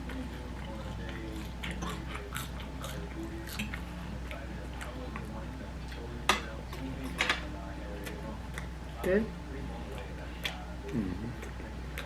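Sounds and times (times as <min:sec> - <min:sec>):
chewing and mouth smacks: 0:00.0 - 0:06.1, 0:08.0 - 0:08.8, 0:09.9 - 0:12.0.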